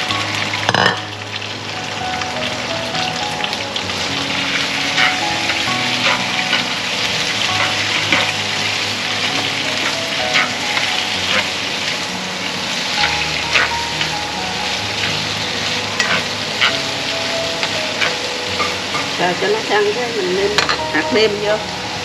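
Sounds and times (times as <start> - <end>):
food sizzling in a pan: 0.0 - 22.0
stirring utensil scraping pan: 4.1 - 19.3.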